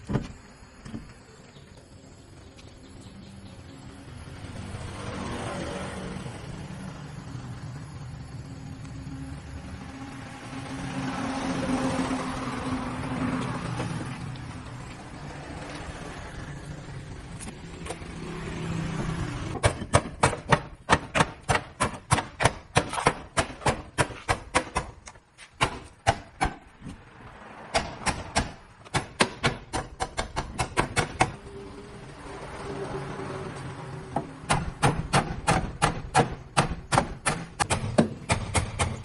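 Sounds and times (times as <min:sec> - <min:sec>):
sharp hammer strikes: 0:19.6 - 0:26.7, 0:34.4 - 0:39.0.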